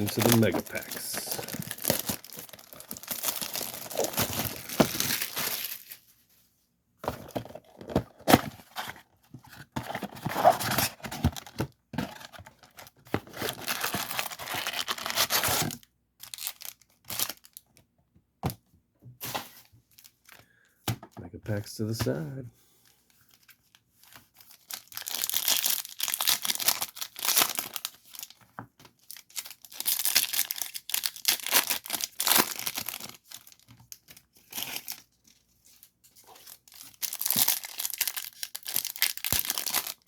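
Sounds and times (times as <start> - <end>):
packaging torn and crinkled: 0.0 - 6.0, 12.5 - 17.6, 24.0 - 28.4, 29.0 - 35.1, 36.3 - 40.0.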